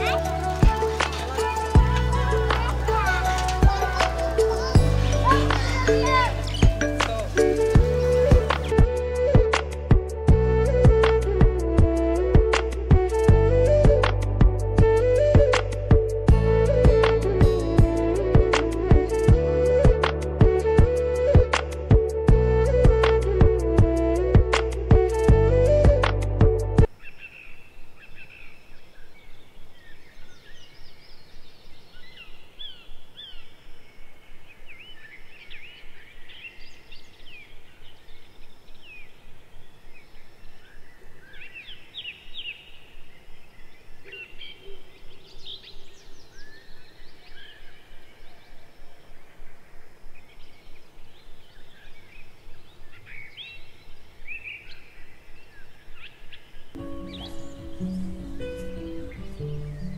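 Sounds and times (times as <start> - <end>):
birds chirping and calling: 0.0 - 8.8, 26.9 - 49.6, 50.2 - 59.9.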